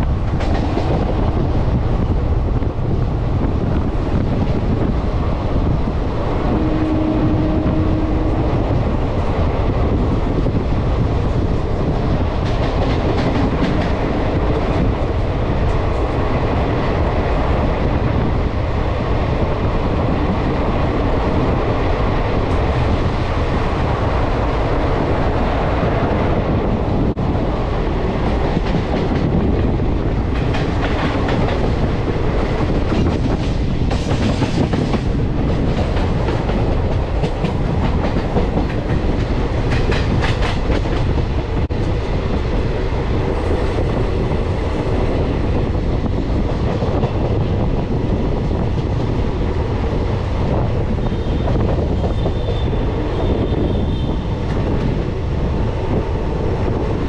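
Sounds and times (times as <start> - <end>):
train wheels clattering: 11.3 - 16.2, 28.2 - 42.2.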